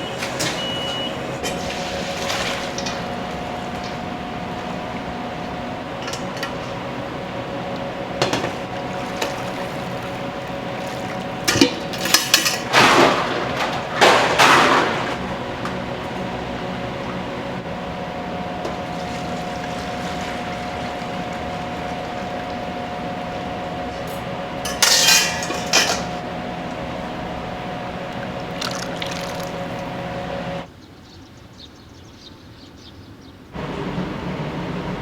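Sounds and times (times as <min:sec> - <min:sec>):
kitchen equipment hum: 0:00.0 - 0:30.7, 0:33.6 - 0:35.0
dishes and pots clattering: 0:11.5 - 0:15.2, 0:24.0 - 0:26.2.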